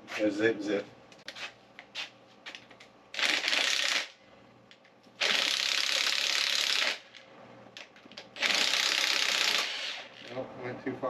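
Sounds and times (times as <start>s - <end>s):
ratchet pawl clicking rapidly: 3.2s - 4.1s, 5.2s - 7.0s, 8.4s - 10.4s.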